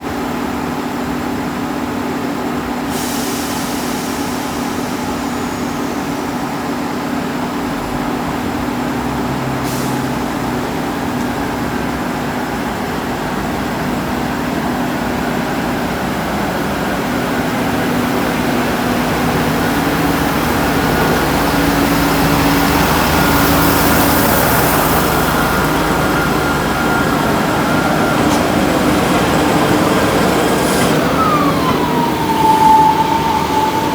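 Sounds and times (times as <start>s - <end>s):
diesel train engine running: 0.0s - 33.9s
air hissing release: 2.9s - 6.4s.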